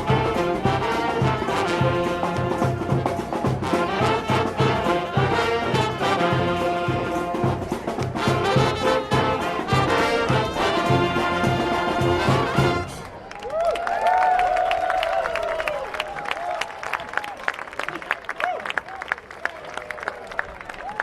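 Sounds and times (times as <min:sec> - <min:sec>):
brass ensemble music: 0:00.0 - 0:13.2
percussion: 0:00.0 - 0:13.6.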